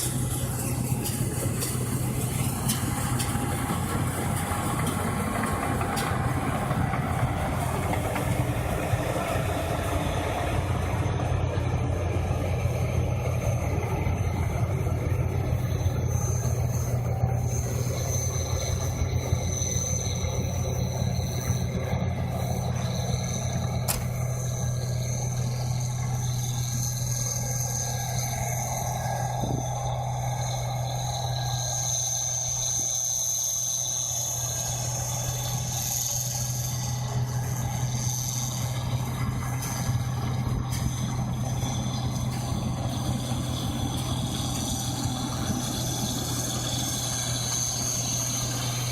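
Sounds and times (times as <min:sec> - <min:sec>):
combine harvester engine drone: 0:00.0 - 0:48.9
high whine: 0:00.0 - 0:48.9.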